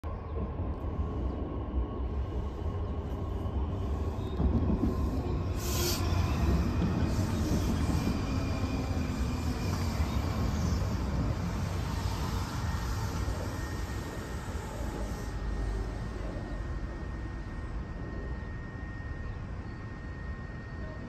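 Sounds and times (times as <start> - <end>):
train rumbling: 0.0 - 21.0
faint high steady tone: 7.6 - 21.0.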